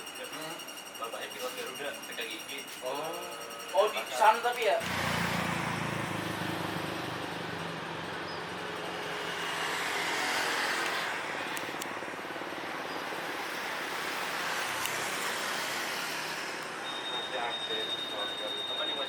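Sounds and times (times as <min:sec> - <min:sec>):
broad rushing roar: 0:04.8 - 0:11.8.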